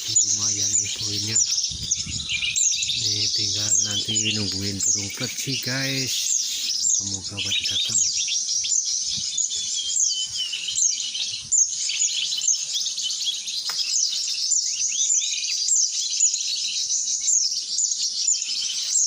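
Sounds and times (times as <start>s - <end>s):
songbirds twittering: 0.0s - 19.0s.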